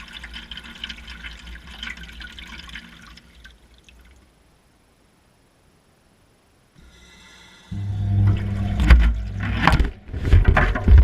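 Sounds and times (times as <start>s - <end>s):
water splashing in washing machine drum: 8.1s - 11.0s.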